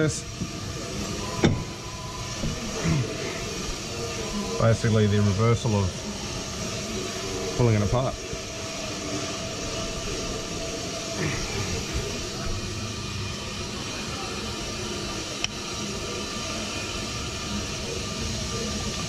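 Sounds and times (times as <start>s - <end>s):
brake lathe humming: 0.0s - 19.0s.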